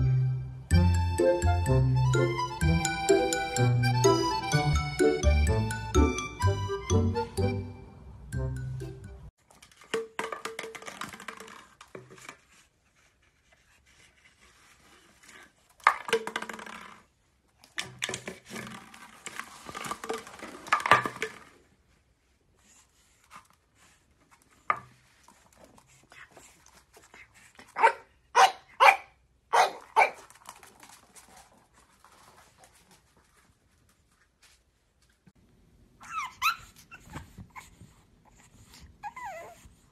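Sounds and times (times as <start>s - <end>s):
plastic bottle crackling on floor: 9.5s - 12.6s, 15.7s - 21.7s
puppy yapping: 27.8s - 30.2s, 36.0s - 37.2s.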